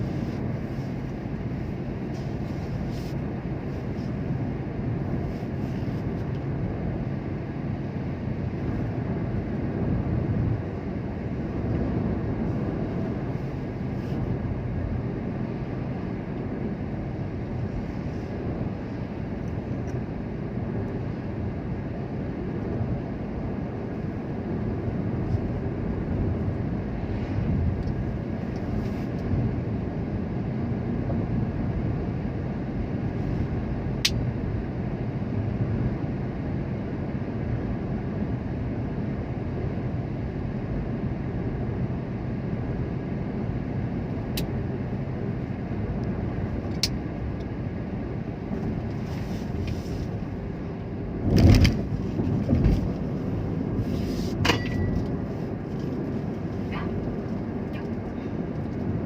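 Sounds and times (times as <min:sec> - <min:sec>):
vehicle rumbling along road: 0:00.0 - 0:59.0
vehicle bump: 0:51.2 - 0:53.1.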